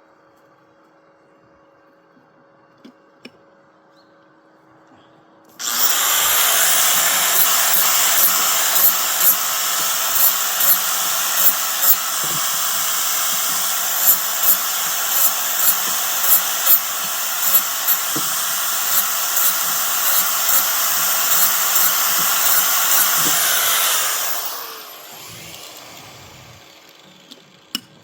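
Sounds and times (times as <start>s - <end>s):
power tool motor whining: 5.6s - 27.8s.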